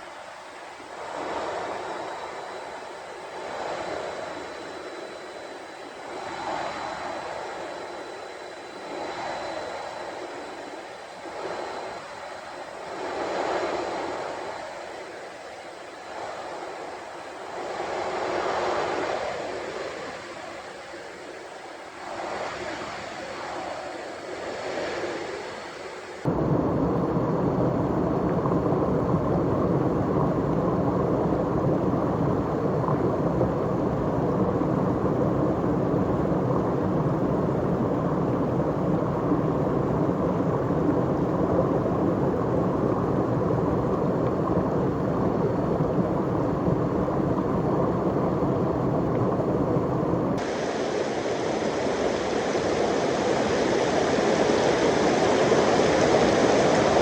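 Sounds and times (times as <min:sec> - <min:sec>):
waterfall rushing: 0:50.4 - 0:57.0.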